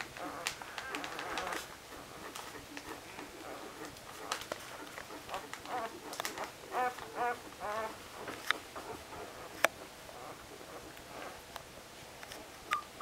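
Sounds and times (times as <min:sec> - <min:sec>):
puppies squeaking and whining: 0:00.2 - 0:09.6.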